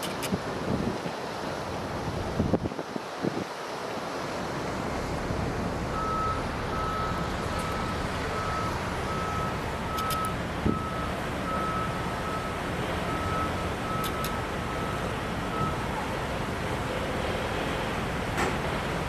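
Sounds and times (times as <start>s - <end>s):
steady wind: 0.0s - 19.0s
vehicle reversing alarm beeps: 5.9s - 16.2s.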